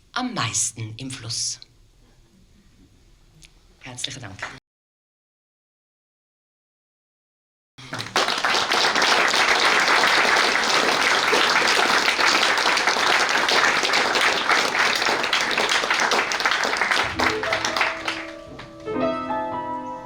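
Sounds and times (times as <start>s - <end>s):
audience applauding: 7.8s - 18.7s
gentle piano playing: 17.2s - 20.0s.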